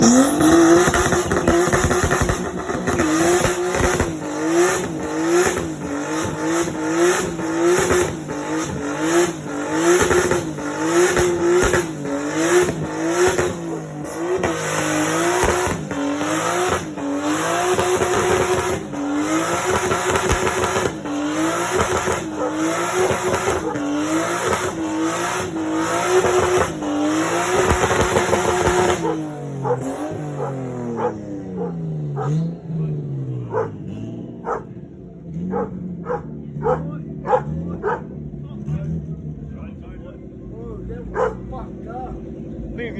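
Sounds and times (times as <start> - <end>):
car engine at high revs: 0.0 - 42.9
tyres squealing: 41.1 - 41.4.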